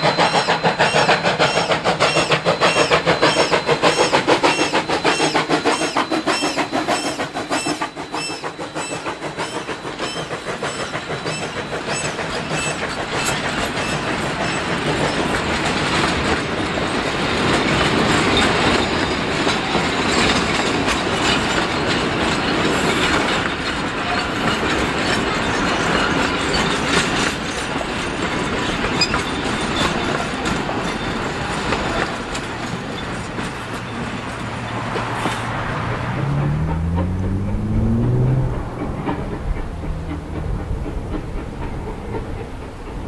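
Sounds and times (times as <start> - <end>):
train rolling noise: 0.0 - 43.0
wheels clicking over rail joints: 0.1 - 43.0.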